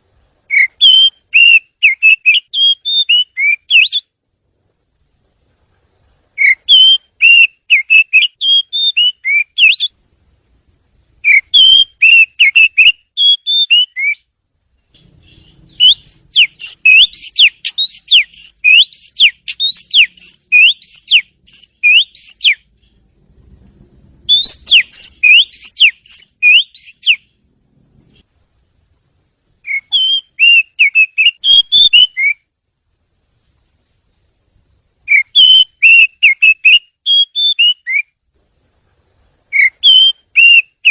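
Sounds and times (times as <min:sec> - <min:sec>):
bird singing whistled notes: 0:00.5 - 0:04.1, 0:06.4 - 0:10.0, 0:11.2 - 0:14.3, 0:14.9 - 0:23.0, 0:24.2 - 0:27.4, 0:29.6 - 0:32.5, 0:35.0 - 0:38.2, 0:39.5 - 0:40.9.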